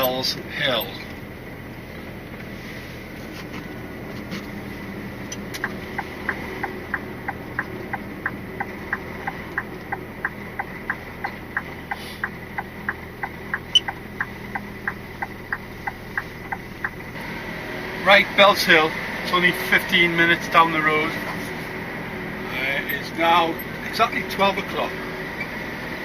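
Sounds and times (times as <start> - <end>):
engine idling hum: 0.0 - 26.0
turn indicator clicking: 5.3 - 17.1.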